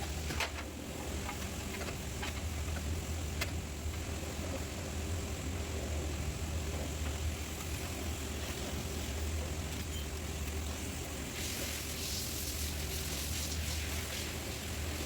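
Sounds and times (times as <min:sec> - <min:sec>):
hiss: 0:11.0 - 0:15.0.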